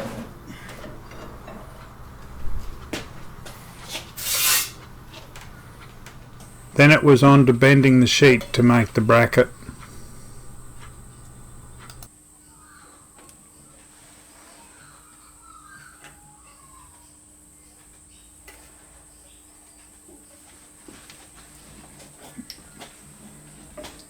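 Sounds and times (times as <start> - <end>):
faint bird calls: 0.0 - 12.8
low hum: 0.3 - 12.1
light scattered clicks: 4.8 - 12.1.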